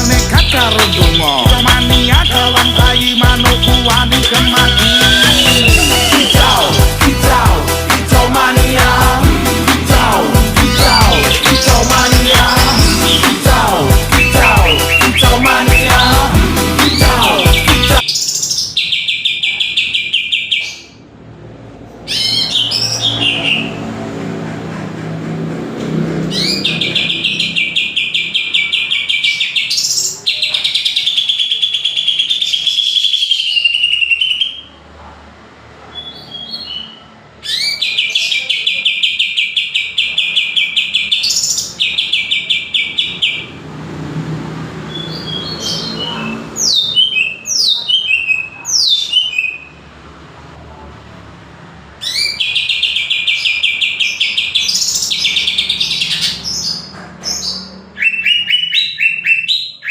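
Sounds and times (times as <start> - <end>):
bird singing buzzing trills: 0.0 - 6.6
bird whistling downward notes: 0.0 - 6.7, 14.1 - 18.3.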